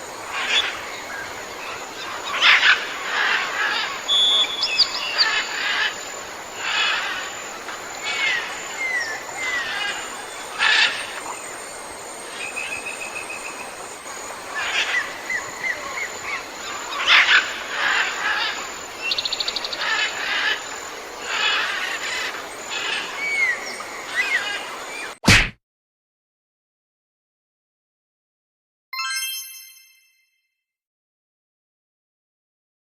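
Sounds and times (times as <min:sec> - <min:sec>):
chattering bird calls: 0:00.2 - 0:25.2
down-slurred bird whistles: 0:04.1 - 0:05.0.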